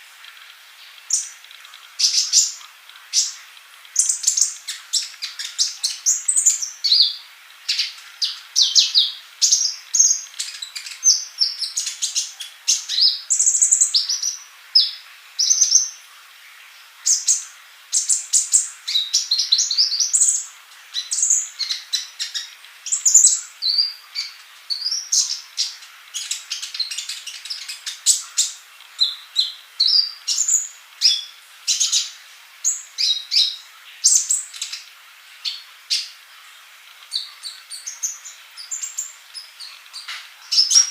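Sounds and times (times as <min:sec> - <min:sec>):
sunbird singing high chirps: 0:02.0 - 0:16.0, 0:17.0 - 0:36.2, 0:37.0 - 0:40.9.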